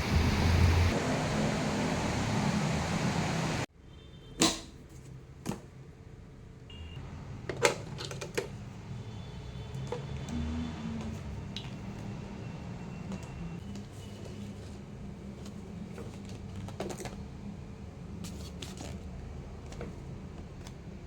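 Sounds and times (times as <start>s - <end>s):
rain-like hiss: 0.0s - 0.9s.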